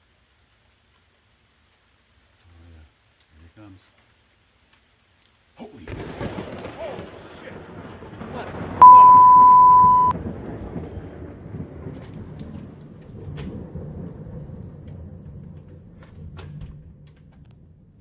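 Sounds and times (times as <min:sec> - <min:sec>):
thunder rumbling: 0:05.9 - 0:11.9
loud steady beep: 0:08.8 - 0:10.1.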